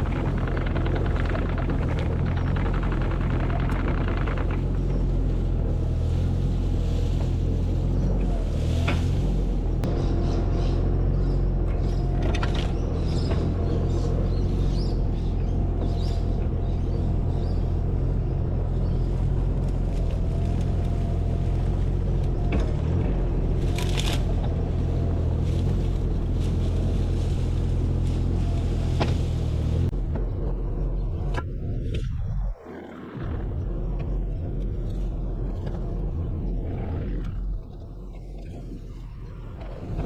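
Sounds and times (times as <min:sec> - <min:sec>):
knocks and scrapes: 0:00.0 - 0:09.9
motor engine running at low revs: 0:00.0 - 0:40.0.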